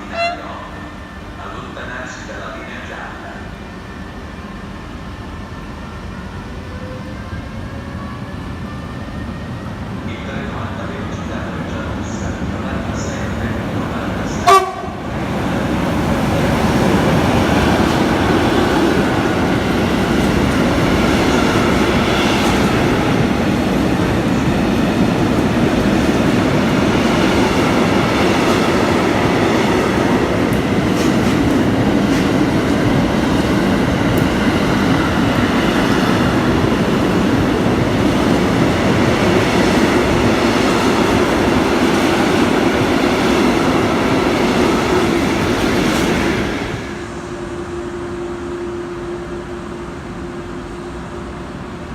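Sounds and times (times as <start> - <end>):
train wheels clattering on track: 15.8 - 46.8.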